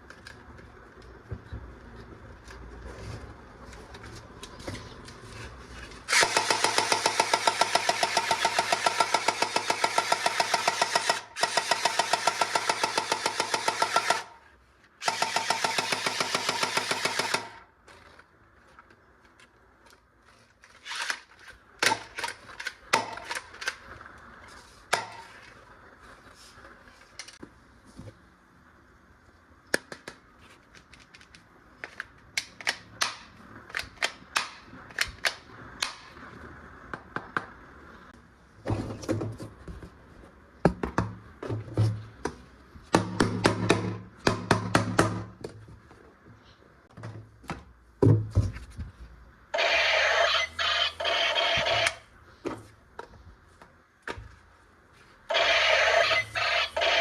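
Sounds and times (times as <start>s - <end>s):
plastic clicks of toy guns: 20.7s - 23.9s, 29.7s - 36.1s.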